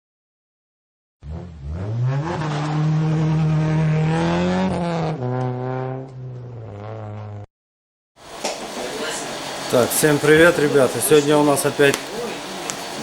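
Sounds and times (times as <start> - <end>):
car engine revving: 1.2 - 7.5.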